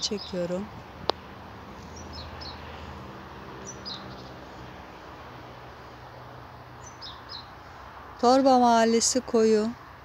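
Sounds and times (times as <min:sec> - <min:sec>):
small bird chirping: 0:03.6 - 0:04.4, 0:06.8 - 0:07.5.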